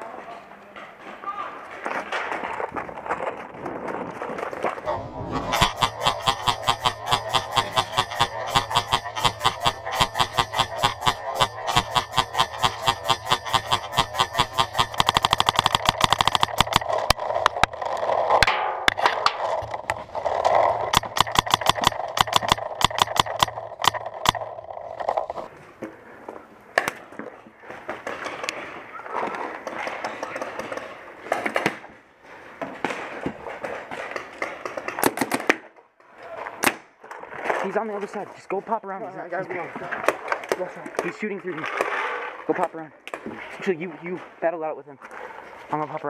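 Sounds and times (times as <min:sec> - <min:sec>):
paintball markers firing: 0:05.5 - 0:17.8, 0:20.5 - 0:25.4, 0:33.9 - 0:35.7.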